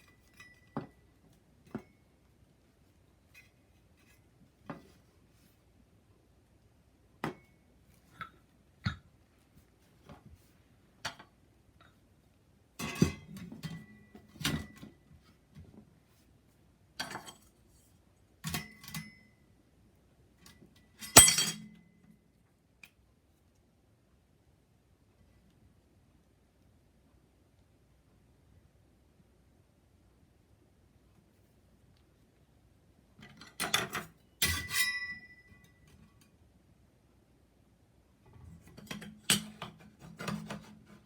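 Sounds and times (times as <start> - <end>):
metal parts clinking and clattering: 21.0 - 21.7.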